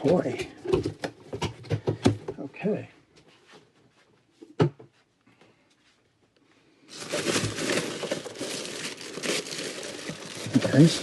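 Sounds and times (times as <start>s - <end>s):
plastic packaging crinkling: 6.9s - 11.0s.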